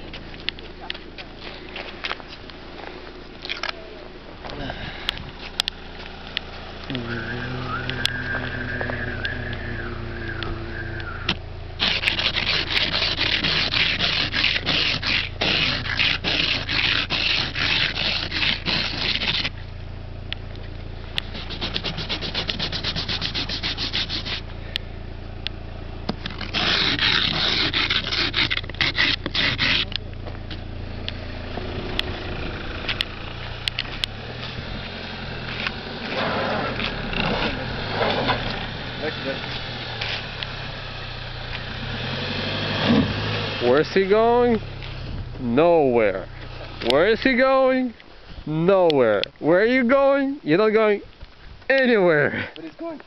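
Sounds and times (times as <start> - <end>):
steady low hum: 0.0 - 50.4
scraping ice off car window: 11.8 - 19.6, 21.2 - 24.5, 26.2 - 30.0, 32.2 - 45.1.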